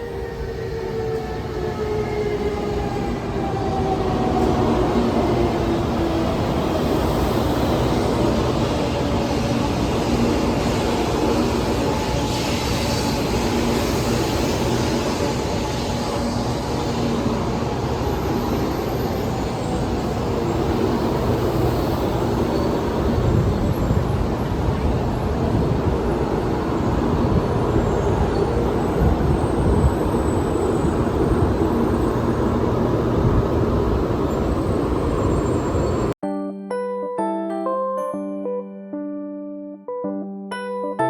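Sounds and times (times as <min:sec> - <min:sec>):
train rumbling past: 0:00.0 - 0:36.2.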